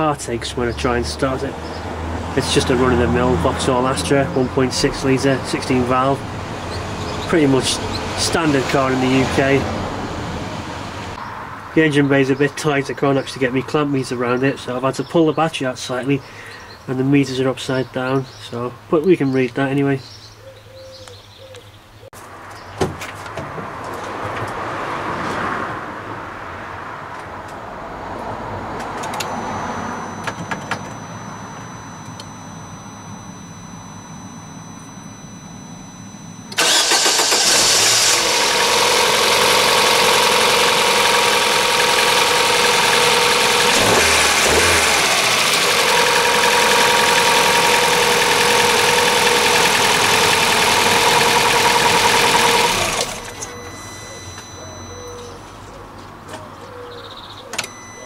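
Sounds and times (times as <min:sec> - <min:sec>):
car engine starting and idling: 0:00.0 - 0:11.2, 0:28.6 - 0:55.4.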